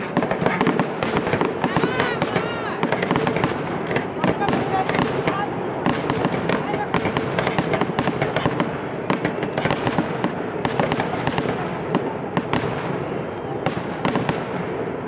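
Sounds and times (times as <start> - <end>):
fireworks crackling and popping: 0.0 - 15.0
fireworks sharp bangs: 0.0 - 15.0.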